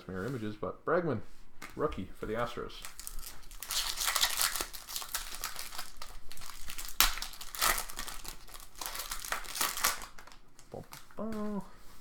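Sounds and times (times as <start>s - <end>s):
foil wrapper crinkling: 1.7s - 11.2s.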